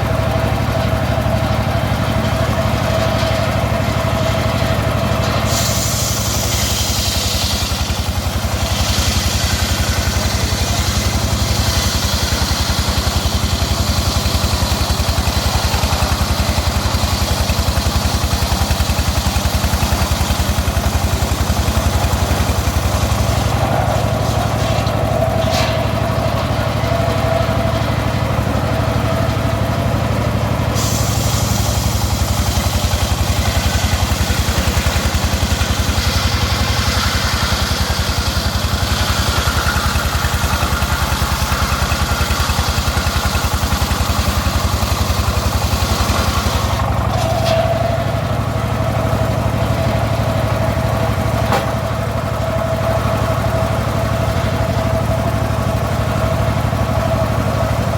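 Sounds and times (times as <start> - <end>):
circular saw blade whining: 0.0 - 57.9
saw cutting through wood: 0.0 - 57.9.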